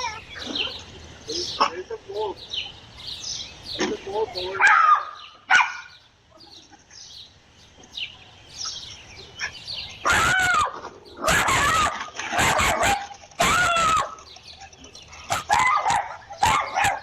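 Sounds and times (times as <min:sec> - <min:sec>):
small birds chirping: 0:00.0 - 0:17.0
loud animal cries: 0:10.0 - 0:14.4, 0:15.1 - 0:17.0.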